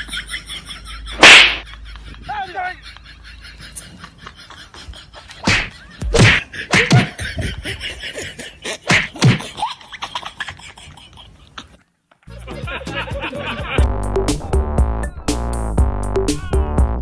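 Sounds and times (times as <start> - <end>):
loud slaps: 1.2 - 1.7, 5.4 - 7.1, 8.9 - 9.5.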